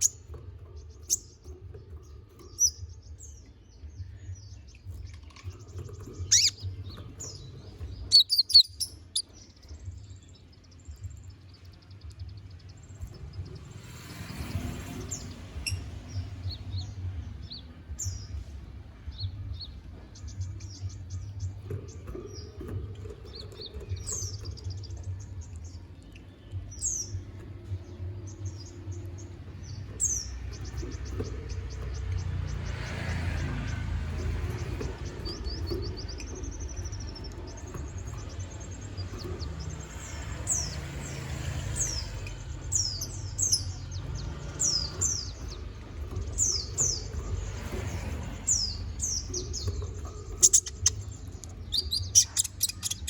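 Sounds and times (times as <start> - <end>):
bird twittering song: 0.0 - 53.0
sharp bird chirps: 6.2 - 7.4, 8.0 - 9.7, 48.5 - 53.0
bird singing high trills: 6.2 - 9.6, 48.5 - 53.0.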